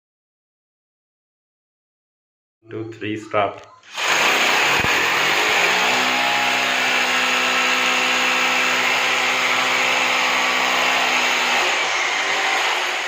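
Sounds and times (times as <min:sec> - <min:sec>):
electric drill running: 0:03.9 - 0:13.0.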